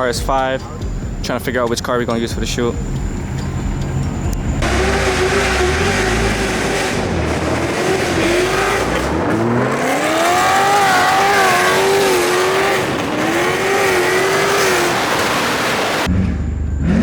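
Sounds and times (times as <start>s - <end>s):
car engine revving: 1.5s - 17.0s
tyres squealing: 2.8s - 16.1s.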